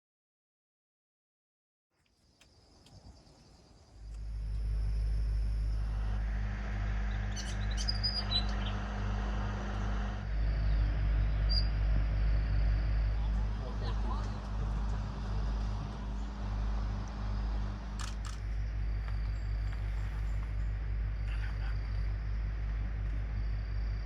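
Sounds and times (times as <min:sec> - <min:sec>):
small birds chirping: 0:02.1 - 0:06.2, 0:06.8 - 0:09.0, 0:13.0 - 0:22.1
vehicle engine idling: 0:03.9 - 0:24.0.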